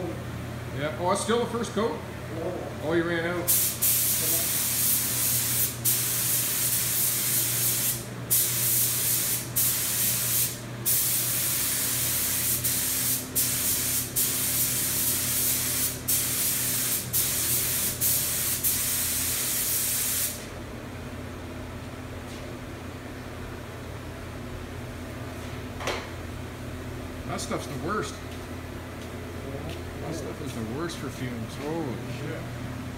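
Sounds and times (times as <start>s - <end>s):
spray gun hissing: 3.5s - 20.5s.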